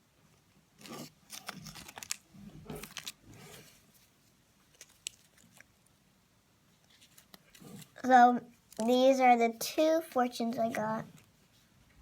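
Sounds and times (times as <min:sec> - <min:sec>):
fortune cookie crunching: 0:00.8 - 0:04.0, 0:04.6 - 0:06.0.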